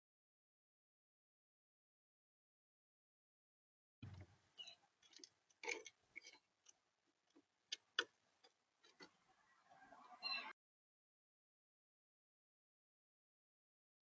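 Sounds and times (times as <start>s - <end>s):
birds pecking at seed: 4.0s - 9.4s
birds scratching: 4.6s - 9.4s.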